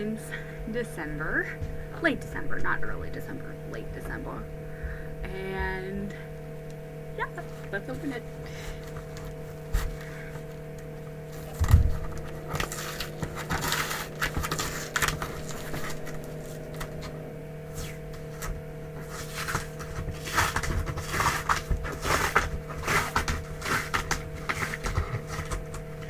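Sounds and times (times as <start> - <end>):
steady hum: 0.0 - 26.0
cardboard box scraping and rustling: 11.2 - 17.1, 17.7 - 26.0.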